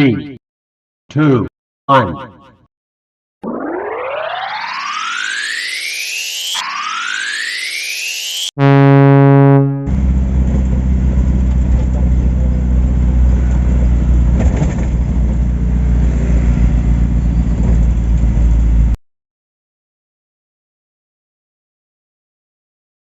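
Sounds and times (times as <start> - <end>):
truck diesel engine rumbling: 9.0 - 18.9.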